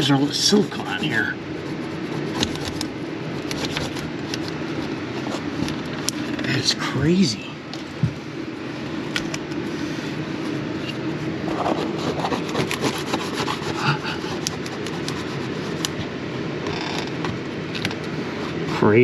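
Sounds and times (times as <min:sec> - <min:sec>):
hand tool scraping wood: 0:11.8 - 0:15.2.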